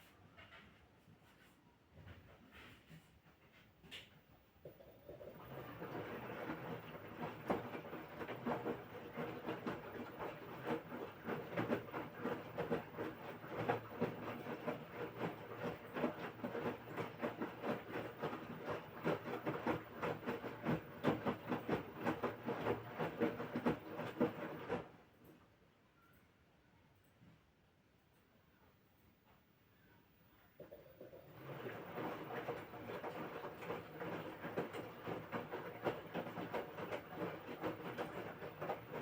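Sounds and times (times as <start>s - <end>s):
washing machine drum tumbling laundry: 5.0s - 25.0s, 30.6s - 39.0s.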